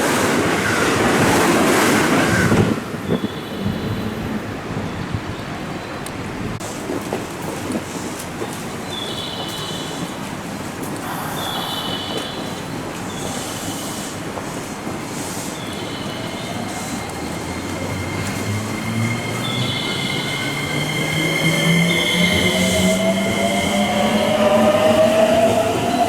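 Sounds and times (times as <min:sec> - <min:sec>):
train wheels squealing: 0:11.2 - 0:14.4, 0:15.2 - 0:26.0.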